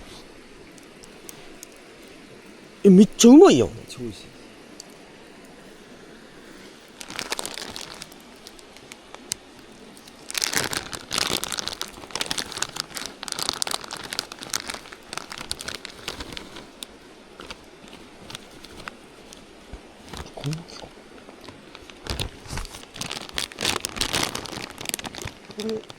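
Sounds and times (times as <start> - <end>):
wrapper crinkling: 6.8 - 25.9.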